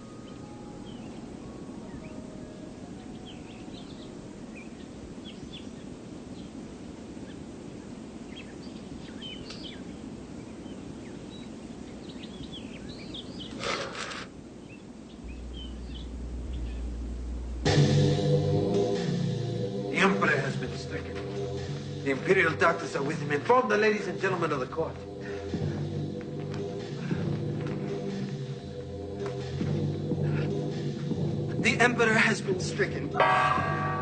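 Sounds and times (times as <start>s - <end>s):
small birds chirping: 0.0s - 17.6s
steady hiss: 0.0s - 34.0s
low hum: 15.2s - 31.7s, 33.0s - 34.0s.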